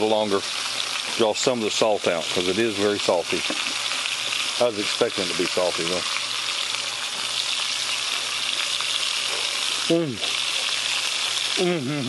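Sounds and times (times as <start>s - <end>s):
meat frying in oil: 0.0s - 12.0s
man making short vocal sound: 9.9s - 10.3s, 11.6s - 12.0s.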